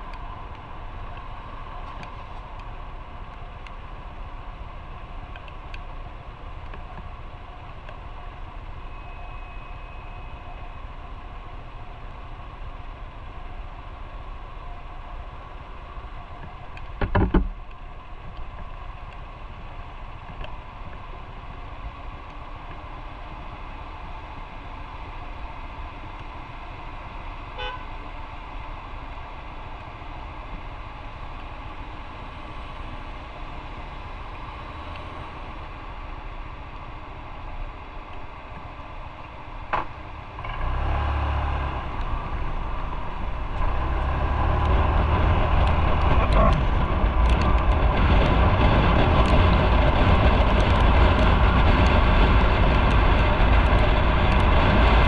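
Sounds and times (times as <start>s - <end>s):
motorcycle pulling away: 40.4s - 55.0s.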